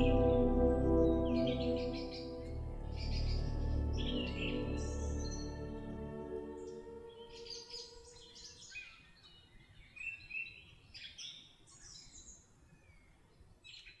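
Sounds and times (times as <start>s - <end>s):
music track: 0.0s - 8.5s
songbirds chirping: 0.0s - 14.0s.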